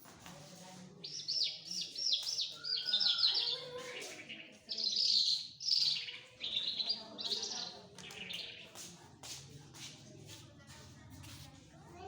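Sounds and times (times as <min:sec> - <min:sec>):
songbird singing: 0:01.0 - 0:08.8.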